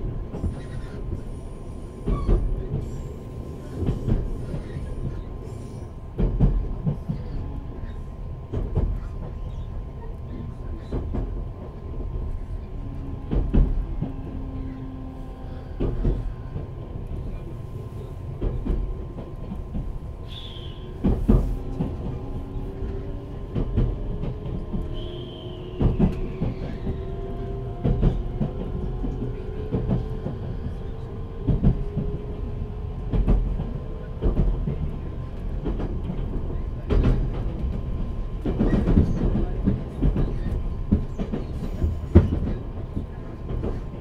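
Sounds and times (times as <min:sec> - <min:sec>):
rail-joint clicks: 0:15.6 - 0:17.3, 0:18.4 - 0:44.0.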